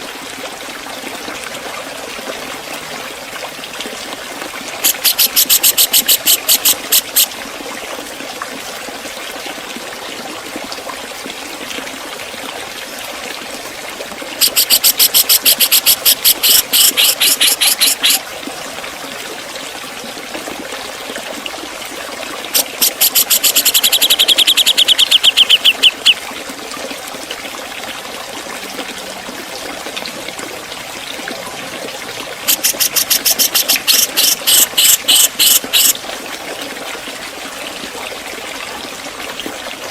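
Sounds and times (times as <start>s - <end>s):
running water: 0.0s - 39.9s
bird singing rapid high notes: 14.4s - 18.2s, 22.6s - 26.2s, 32.5s - 35.9s.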